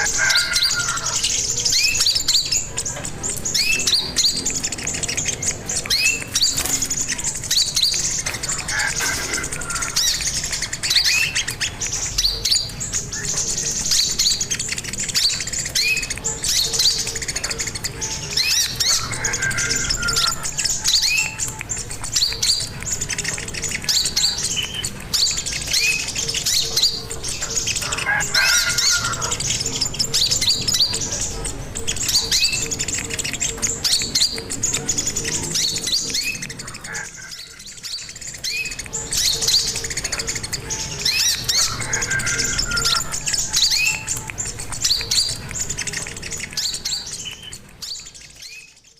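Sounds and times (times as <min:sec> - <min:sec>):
bird chirping: 0:00.0 - 0:48.9.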